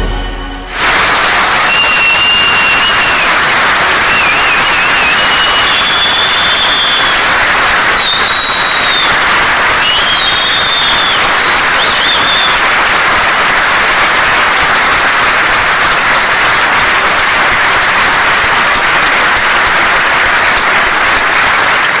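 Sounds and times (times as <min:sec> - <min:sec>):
short high whistle: 0:00.0 - 0:09.2, 0:09.8 - 0:12.6
audience applauding: 0:00.7 - 0:22.0.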